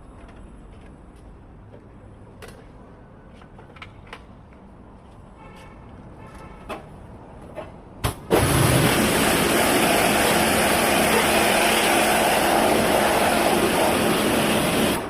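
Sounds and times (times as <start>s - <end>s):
loud mechanical rushing noise: 8.2s - 15.0s.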